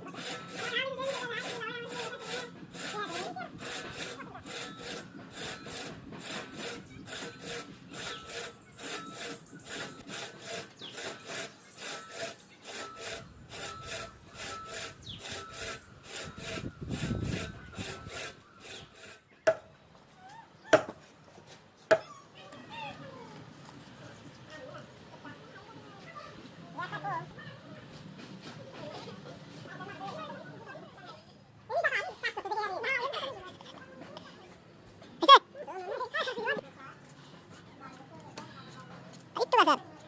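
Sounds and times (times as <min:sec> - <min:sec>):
hand saw cutting wood: 0:00.0 - 0:19.6.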